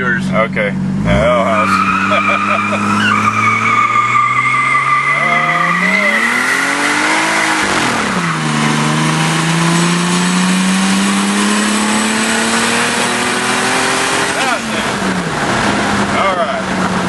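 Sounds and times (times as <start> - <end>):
turbo engine accelerating hard: 0.1 - 17.0
tire squeal: 1.1 - 8.8.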